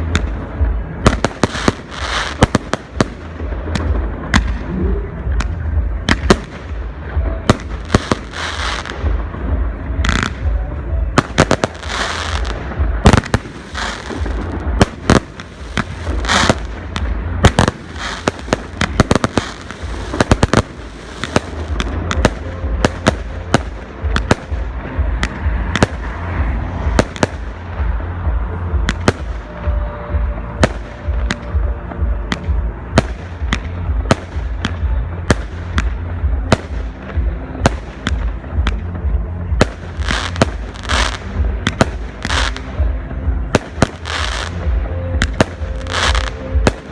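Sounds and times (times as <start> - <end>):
fireworks bursting with sharp bangs: 0.0 - 46.9
steady low rumble: 0.0 - 46.9.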